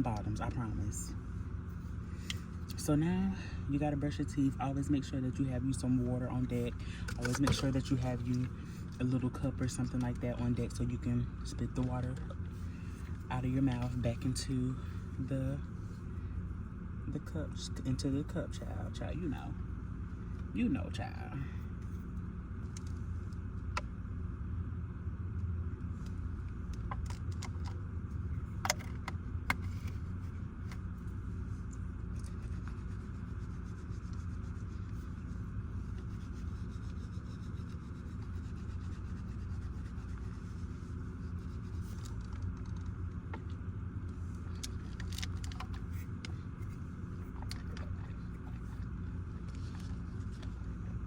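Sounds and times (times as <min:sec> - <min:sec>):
low hum: 0:00.0 - 0:51.0
clicks and scrapes of handling: 0:28.4 - 0:50.9.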